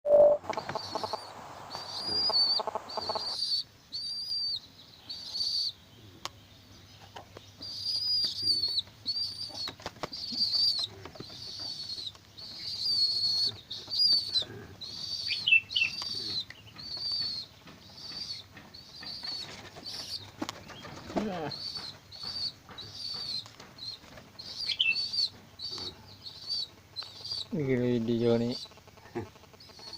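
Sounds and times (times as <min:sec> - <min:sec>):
bird calling high thin notes: 0:00.1 - 0:04.4
rustle: 0:00.4 - 0:29.9.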